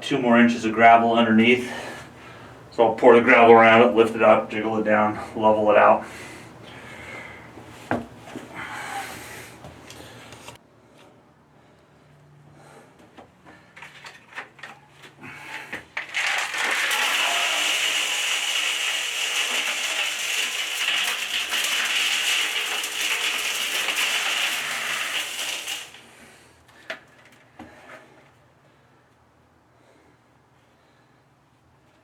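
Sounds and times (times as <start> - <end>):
gravel pouring rattle: 15.9 - 26.3.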